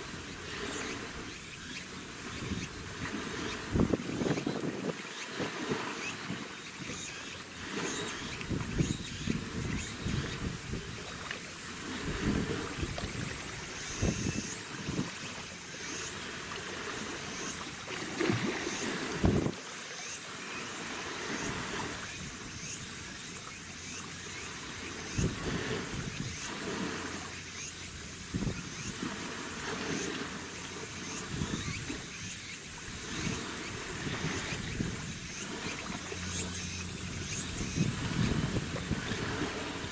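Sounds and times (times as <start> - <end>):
sea water washing: 0.0 - 39.9
wind gusting on microphone: 2.2 - 6.4, 8.1 - 11.2, 11.8 - 15.2, 18.3 - 19.6, 32.7 - 39.9
faint passing ships: 20.6 - 39.9.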